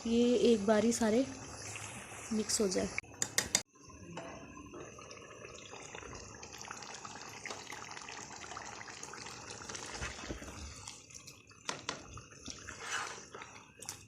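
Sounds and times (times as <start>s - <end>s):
food sizzling in oil: 0.0s - 3.2s, 11.6s - 13.6s.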